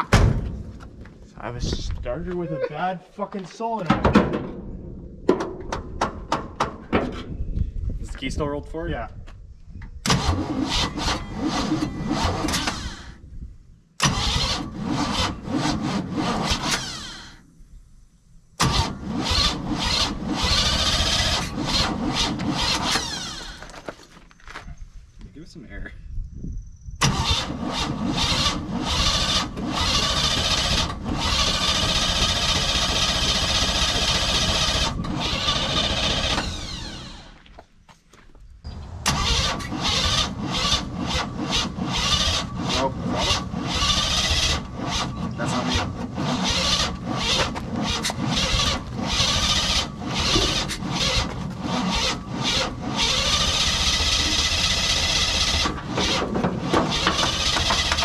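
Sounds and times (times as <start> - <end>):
starter motor cranking engine: 10.0 - 13.2, 14.0 - 17.4, 18.6 - 23.9, 27.0 - 37.4, 38.7 - 58.0.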